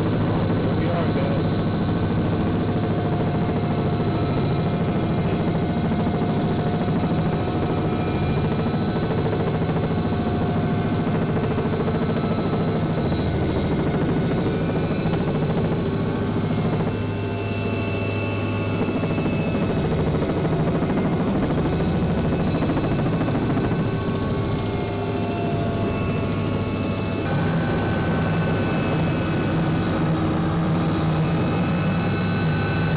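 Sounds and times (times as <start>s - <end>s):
helicopter rotor beat: 0.0s - 32.9s
high whining tones: 12.4s - 32.9s.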